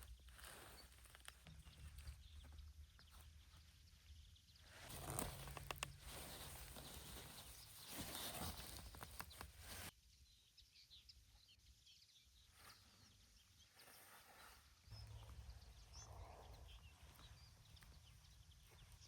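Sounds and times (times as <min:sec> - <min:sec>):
rustling: 0:00.0 - 0:04.0, 0:04.6 - 0:09.9.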